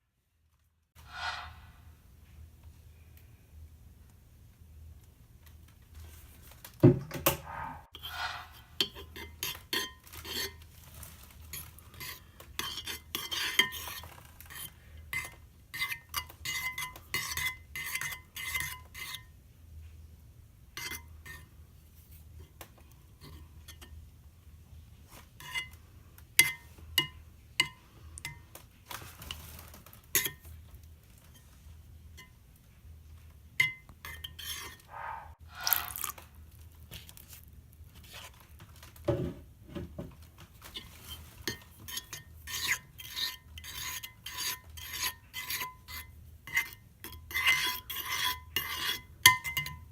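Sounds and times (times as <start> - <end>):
utensil scraping a bowl: 1.0 - 1.8, 7.4 - 19.4, 20.8 - 24.0, 25.2 - 25.8, 33.6 - 36.2, 40.6 - 49.9.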